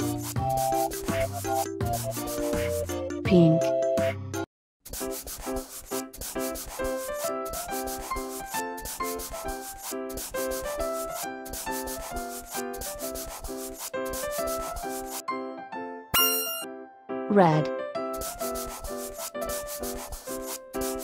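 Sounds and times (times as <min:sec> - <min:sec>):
pen scratching on paper: 0:00.0 - 0:03.0, 0:04.9 - 0:15.2, 0:18.1 - 0:21.0
simple children's tune: 0:16.2 - 0:17.8.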